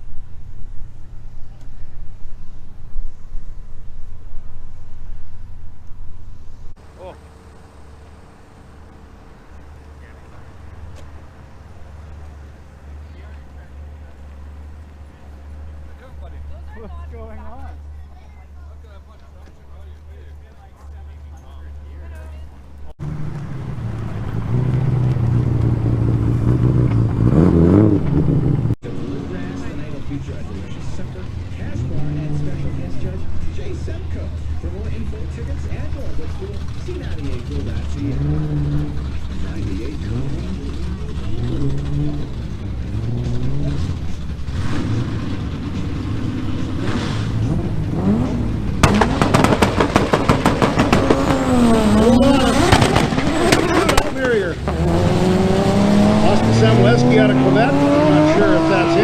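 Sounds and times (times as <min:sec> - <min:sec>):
exhaust pops crackling: 0:05.7 - 0:16.5, 0:19.0 - 0:28.8, 0:32.5 - 0:59.0
car engine running and revving: 0:22.9 - 0:59.0.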